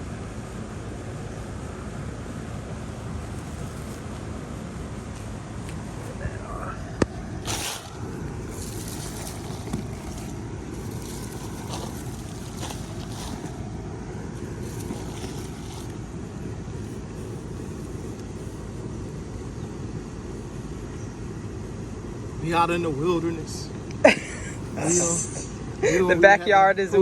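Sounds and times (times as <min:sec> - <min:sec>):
soil scraping and rustling: 0:03.1 - 0:18.8.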